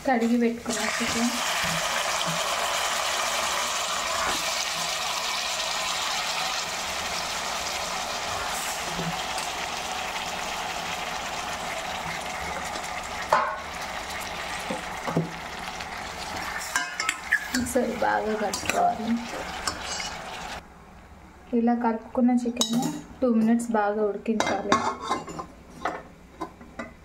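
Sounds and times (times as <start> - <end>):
chicken sizzling in oil: 0.6 - 20.6.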